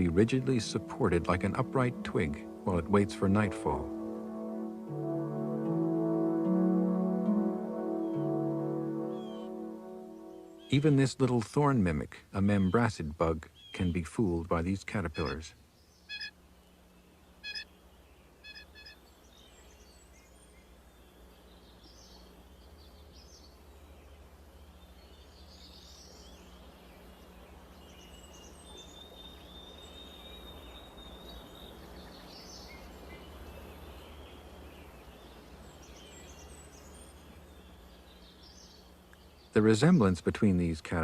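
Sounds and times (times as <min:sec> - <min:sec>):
steady low hum: 0:00.0 - 0:41.0
high bird chirps: 0:09.0 - 0:10.9.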